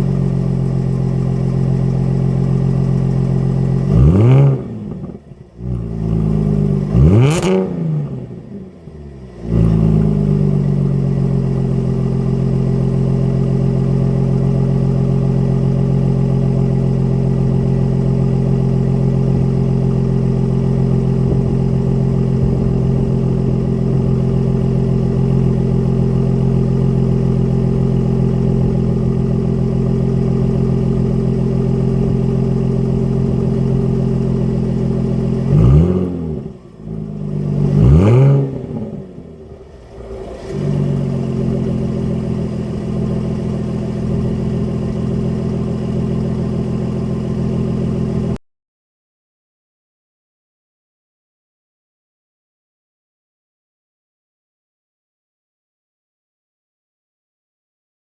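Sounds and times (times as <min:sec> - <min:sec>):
car engine revving: 0:01.7 - 0:12.7, 0:17.5 - 0:46.5.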